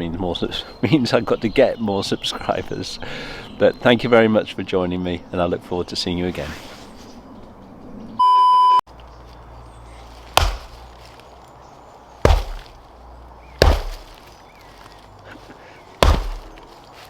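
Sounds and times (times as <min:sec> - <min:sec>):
heavy chopping strikes on wood: 0:10.4 - 0:10.9, 0:12.3 - 0:12.8, 0:13.6 - 0:14.2, 0:16.0 - 0:16.7.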